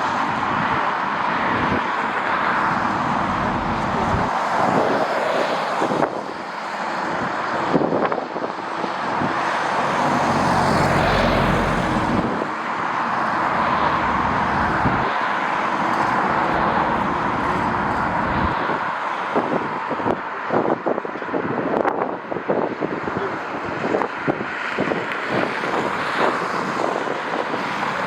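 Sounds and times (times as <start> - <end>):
jet engines roaring: 0.0 - 7.6, 8.4 - 19.1, 24.8 - 28.0.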